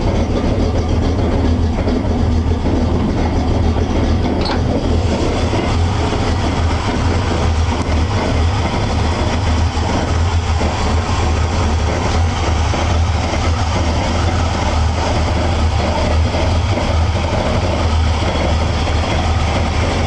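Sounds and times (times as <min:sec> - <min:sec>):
pickup truck engine idling: 0:00.0 - 0:20.0.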